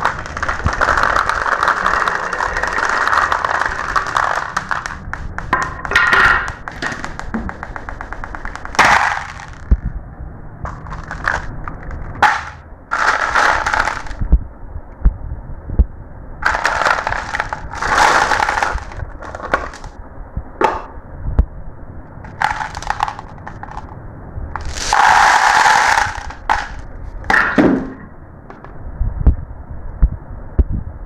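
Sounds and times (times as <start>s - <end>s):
marbles rolling and clattering: 0.0s - 9.9s, 10.6s - 14.2s, 16.4s - 20.0s, 22.2s - 24.0s, 24.6s - 28.7s.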